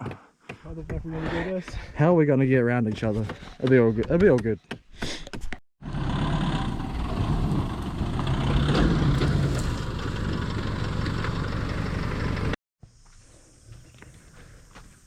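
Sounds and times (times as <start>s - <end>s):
vehicle engine rumbling: 5.8s - 13.0s.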